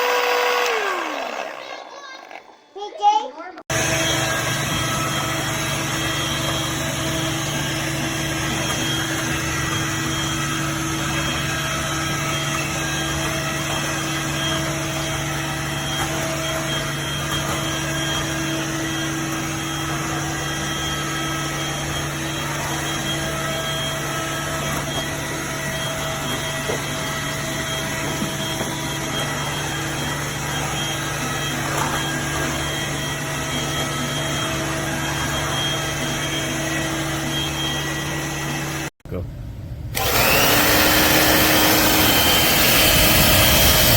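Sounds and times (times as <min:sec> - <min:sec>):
vacuum cleaner running on carpet: 0:00.0 - 0:01.6, 0:03.7 - 0:38.9, 0:40.0 - 0:43.9.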